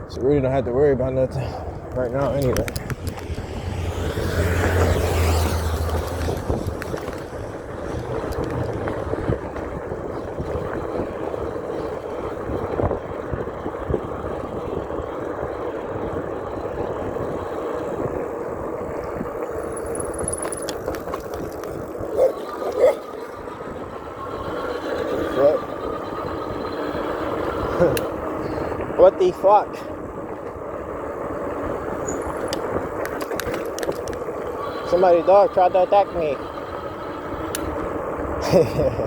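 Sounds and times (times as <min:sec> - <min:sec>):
wind and tyre noise on wet pavement: 0:00.0 - 0:39.0
dog barking: 0:22.1 - 0:23.2.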